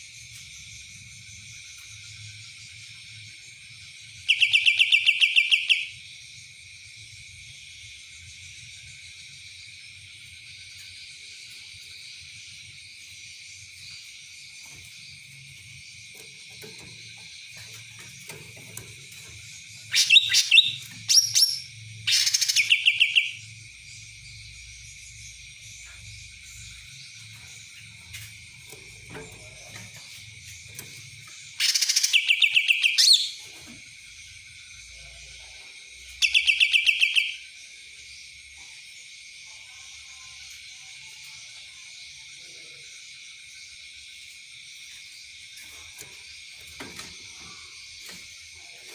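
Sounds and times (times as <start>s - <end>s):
songbird singing trilling notes: 2.7s - 6.0s, 11.6s - 33.6s, 34.5s - 37.7s.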